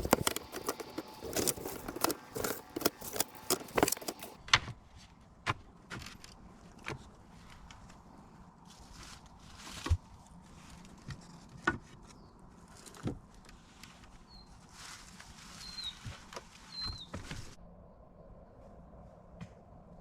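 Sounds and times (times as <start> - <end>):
rustling: 0.0 - 4.4, 14.6 - 17.5.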